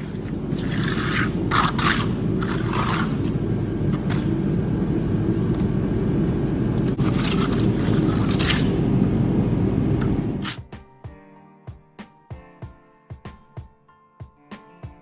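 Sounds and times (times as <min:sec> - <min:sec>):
trowel scraping concrete: 0:00.0 - 0:04.4, 0:06.8 - 0:09.2, 0:10.0 - 0:10.6.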